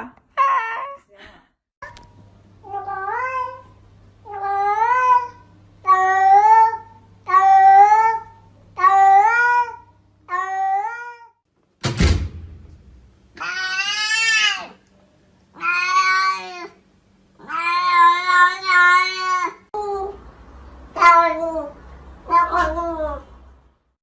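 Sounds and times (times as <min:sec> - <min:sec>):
thud: 0:11.8 - 0:13.0
cat meowing: 0:15.6 - 0:16.8, 0:17.4 - 0:19.6, 0:21.0 - 0:23.2.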